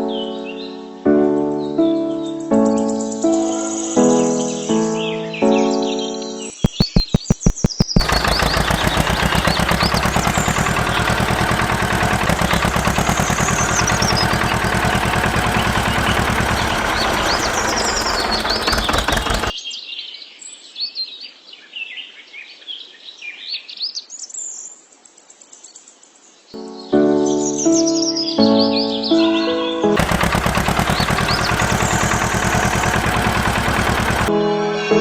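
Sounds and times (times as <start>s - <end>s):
birds chirping: 5.1s - 19.6s, 28.7s - 34.3s
machine pulsing loudly: 6.5s - 19.5s, 30.0s - 34.3s.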